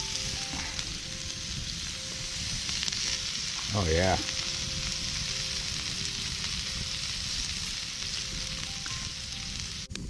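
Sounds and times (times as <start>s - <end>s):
chicken sizzling over campfire: 0.0s - 10.0s.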